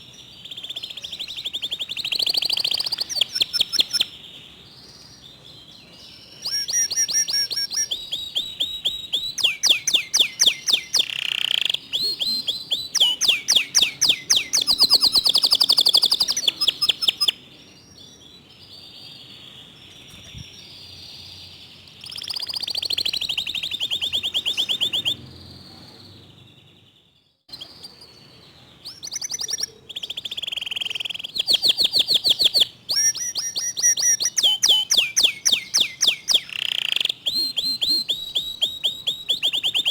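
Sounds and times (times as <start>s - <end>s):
canary singing rapid trills: 0.0s - 39.9s.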